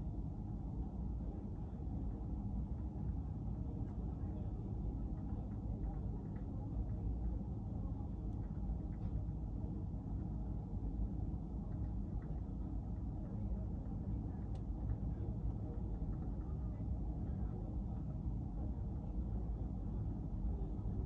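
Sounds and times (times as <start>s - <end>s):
faint click: 14.4s - 15.0s.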